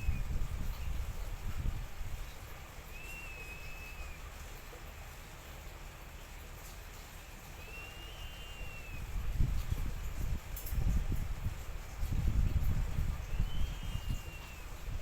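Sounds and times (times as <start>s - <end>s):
bird whistle call: 2.9s - 4.2s, 7.6s - 9.1s, 13.3s - 14.8s.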